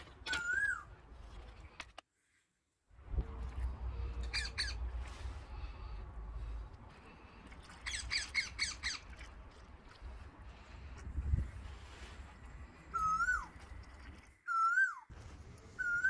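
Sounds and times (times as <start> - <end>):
bird squawking: 4.3 - 4.8.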